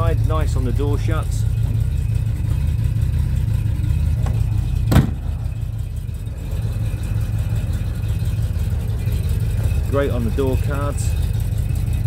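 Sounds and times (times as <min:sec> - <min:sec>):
engine idling: 0:00.0 - 0:12.0
sharp knock: 0:04.2 - 0:05.2.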